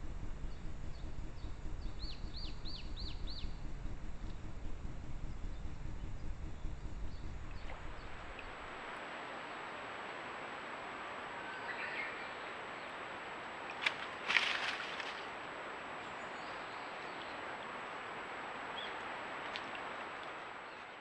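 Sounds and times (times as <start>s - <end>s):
low rumble: 0.0s - 20.2s
faint bird chirp: 0.4s - 3.6s, 10.9s - 21.0s
steady hiss: 6.8s - 21.0s.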